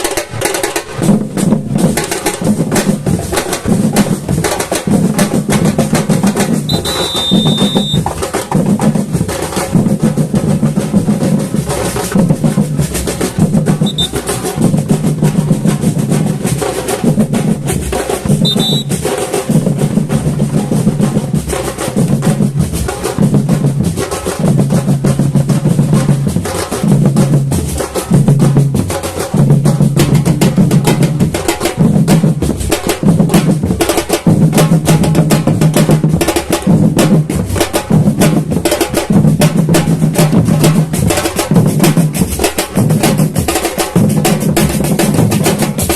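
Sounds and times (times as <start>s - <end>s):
snare drum strokes: 5.9s - 9.0s, 11.7s - 15.5s, 18.1s - 19.8s
short high steady tones: 6.7s - 8.0s, 13.8s - 14.2s, 18.4s - 19.0s.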